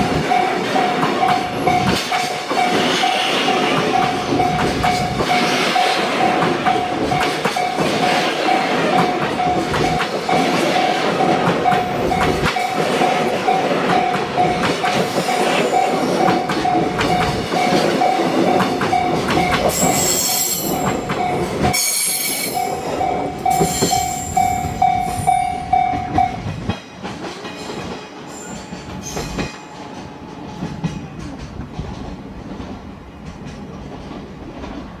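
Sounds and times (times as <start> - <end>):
train wagons rolling on rails: 0.0 - 35.0
wheels clicking over rail joints: 0.0 - 35.0
high-pitched wheel squeal: 19.7 - 20.9, 21.8 - 22.7.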